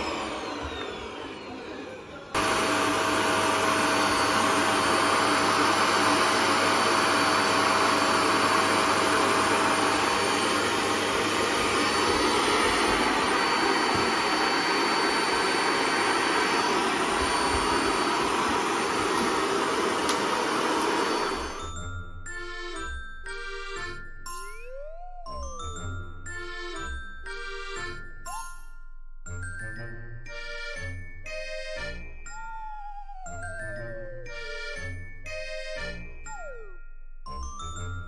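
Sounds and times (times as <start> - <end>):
vacuum cleaner whining: 0.0 - 21.8.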